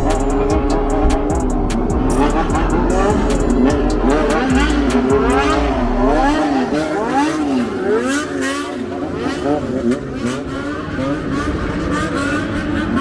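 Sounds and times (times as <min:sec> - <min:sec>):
vehicle engine revving: 0:00.0 - 0:13.0.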